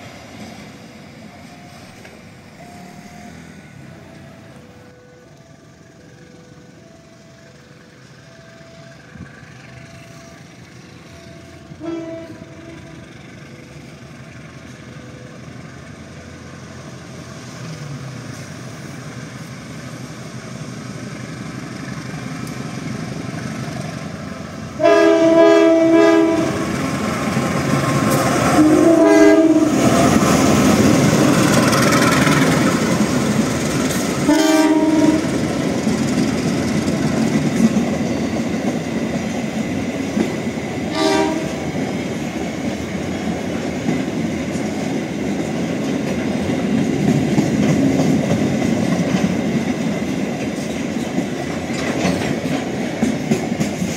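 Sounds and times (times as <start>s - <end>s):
train wheels rumbling on rails: 0.0s - 53.9s
train horn blasts: 11.2s - 13.1s, 24.8s - 26.8s, 28.3s - 30.2s, 34.2s - 35.4s, 40.9s - 41.8s.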